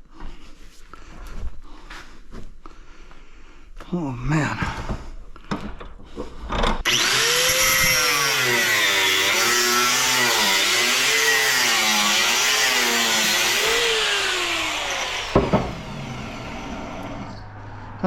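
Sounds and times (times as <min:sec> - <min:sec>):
electric power tool cutting: 0:06.9 - 0:17.4
sharp knock: 0:15.4 - 0:15.8.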